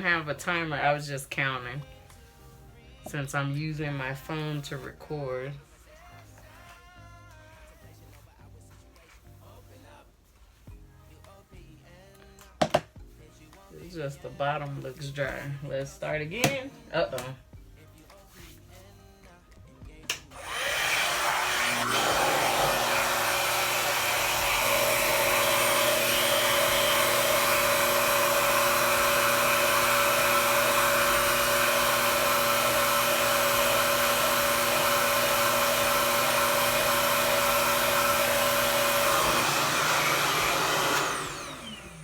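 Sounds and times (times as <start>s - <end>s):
hair dryer whooshing hum: 20.3s - 42.0s.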